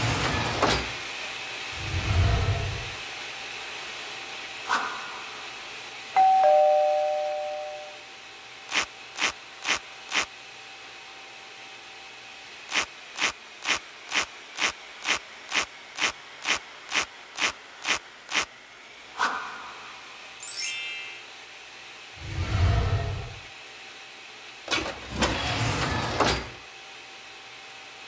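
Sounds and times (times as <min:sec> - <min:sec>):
two-note chime: 0:06.2 - 0:08.0, 0:20.4 - 0:21.3.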